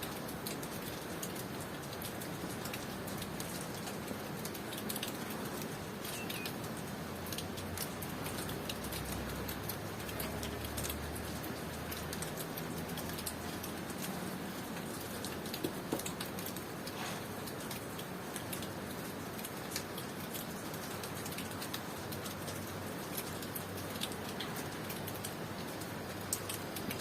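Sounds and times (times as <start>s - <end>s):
steady rain with drips: 0.0s - 27.0s
faint bird chirp: 6.0s - 6.6s.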